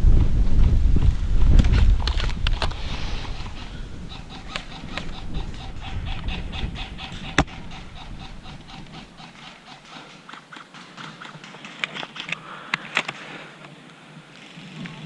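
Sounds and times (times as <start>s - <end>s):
wind buffeting microphone: 0.0s - 12.4s
sharp clicks: 1.5s - 13.8s.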